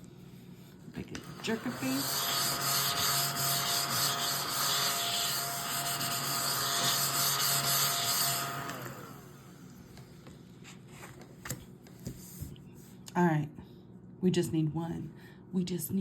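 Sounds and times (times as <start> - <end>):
lottery ticket being scratched: 1.4 - 8.2.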